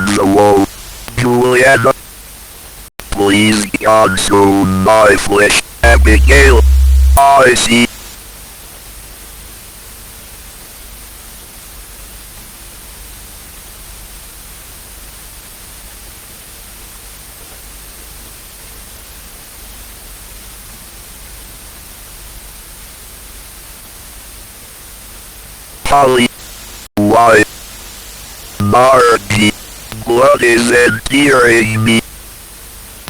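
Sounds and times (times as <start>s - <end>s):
static hiss: 0.0s - 2.0s, 3.0s - 8.2s, 25.9s - 32.4s
faint low hum: 3.2s - 7.9s, 28.6s - 32.0s.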